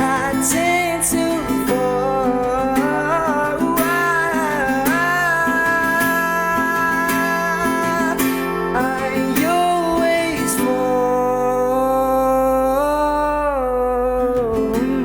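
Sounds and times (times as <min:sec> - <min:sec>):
acoustic guitar: 0:00.0 - 0:15.0
man singing wordless notes: 0:00.0 - 0:15.0.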